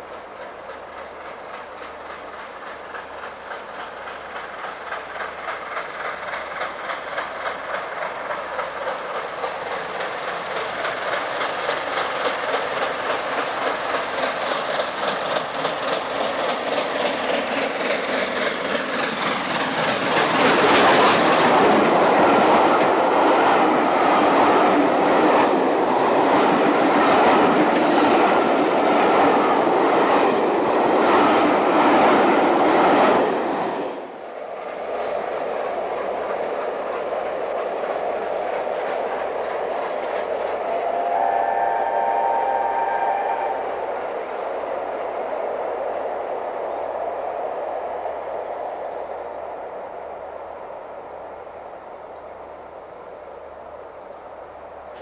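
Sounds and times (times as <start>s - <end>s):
wheel clatter on rails: 0.0s - 33.6s
steam locomotive exhaust beats: 0.0s - 55.0s.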